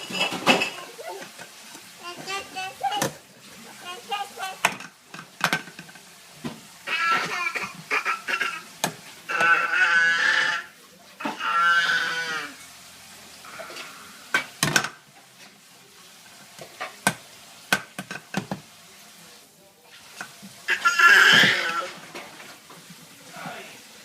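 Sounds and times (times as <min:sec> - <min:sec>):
dishes clinking: 0:00.0 - 0:01.6.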